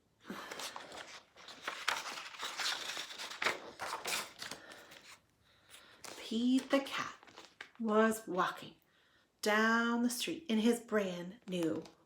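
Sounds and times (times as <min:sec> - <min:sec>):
paper pages rustling: 0:00.3 - 0:07.8.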